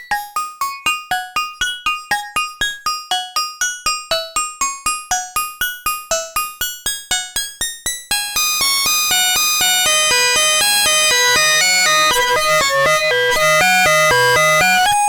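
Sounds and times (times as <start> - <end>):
bright plucked synth notes: 9.1 - 15.0.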